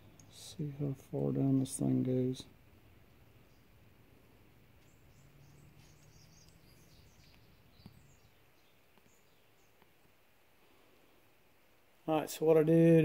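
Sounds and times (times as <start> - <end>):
faint bird chirps: 2.2 - 10.2.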